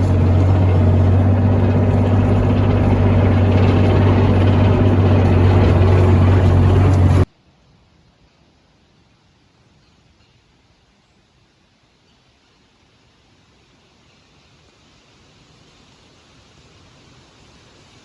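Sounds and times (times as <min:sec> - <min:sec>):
engine running with low hum: 0:00.0 - 0:07.3.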